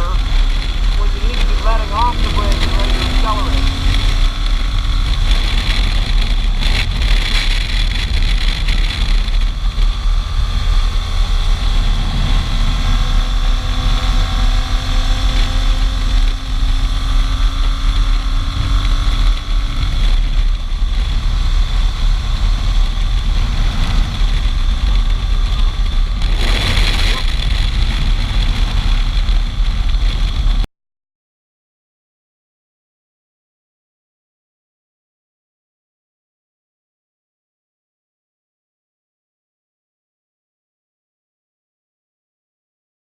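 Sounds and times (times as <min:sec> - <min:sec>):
wind buffeting microphone: 0:00.0 - 0:30.6
motorcycle engine cruising: 0:00.0 - 0:30.7.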